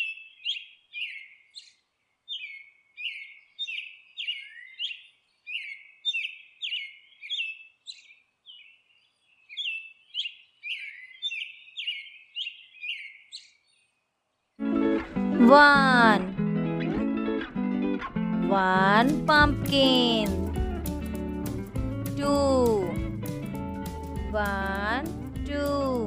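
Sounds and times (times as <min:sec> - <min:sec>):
small songbird chirping: 0:00.0 - 0:14.6.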